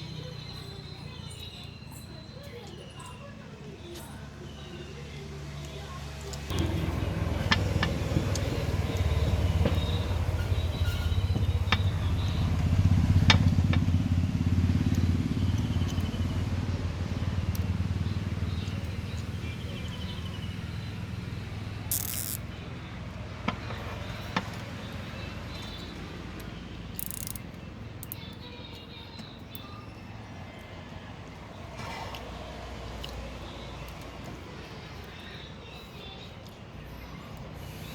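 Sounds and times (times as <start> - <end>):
vehicle engine pulsing rumble: 4.0 - 37.9
sharp clicks: 21.9 - 22.6, 26.4 - 29.7.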